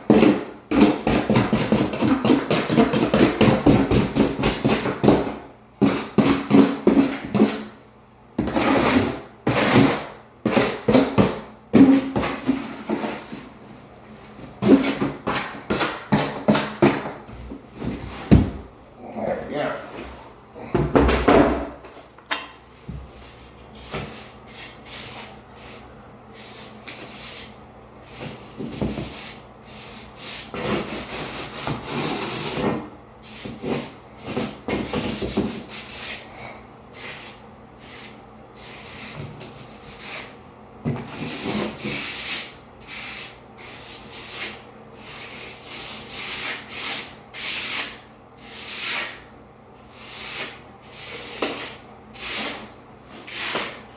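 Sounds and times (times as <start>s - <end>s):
trowel scraping mortar: 49.9s - 53.8s.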